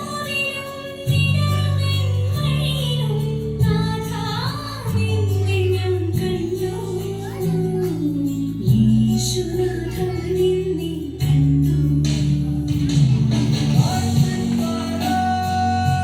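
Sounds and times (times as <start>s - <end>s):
high singing voice: 0.0s - 13.0s, 13.6s - 16.0s
sustained bass chords: 8.4s - 16.0s.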